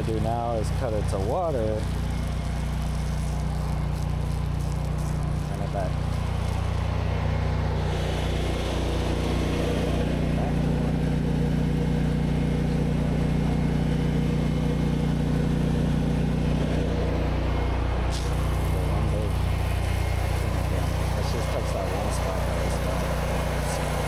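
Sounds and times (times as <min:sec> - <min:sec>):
pressure washer engine running: 0:00.0 - 0:24.0
short high hiss: 0:13.6 - 0:24.0.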